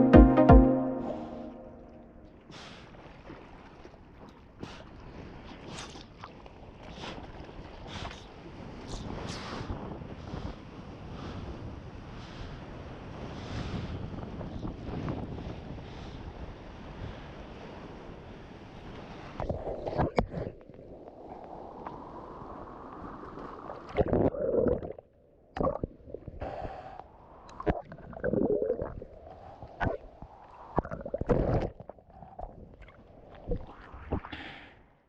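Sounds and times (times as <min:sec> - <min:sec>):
muffled water splashing: 0:00.0 - 0:08.8.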